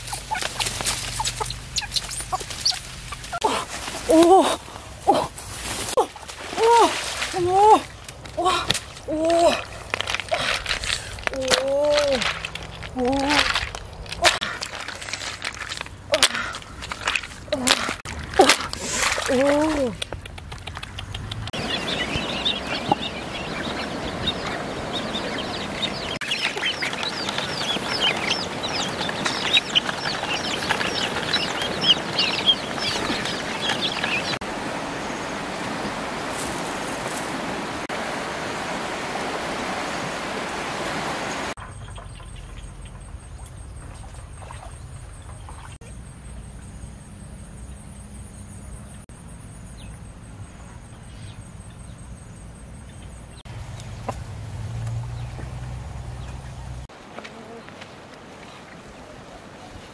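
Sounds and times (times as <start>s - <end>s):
birds chirping and peeping: 0.0s - 3.4s, 20.9s - 34.4s, 41.6s - 46.4s.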